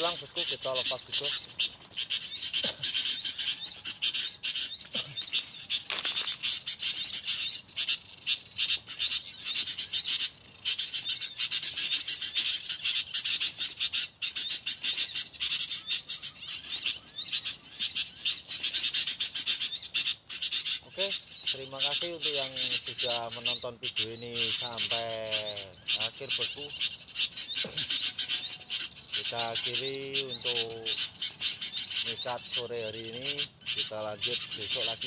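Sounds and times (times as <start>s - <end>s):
rustle: 0.0s - 12.4s
small birds chirping: 0.0s - 35.0s.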